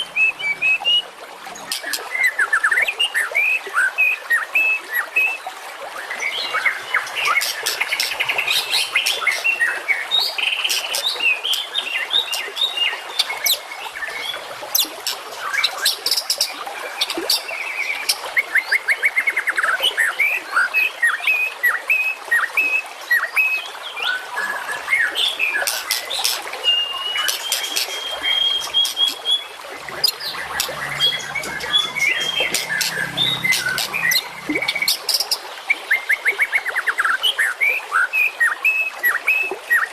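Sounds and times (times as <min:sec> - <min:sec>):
songbird chorus: 0:24.0 - 0:36.8.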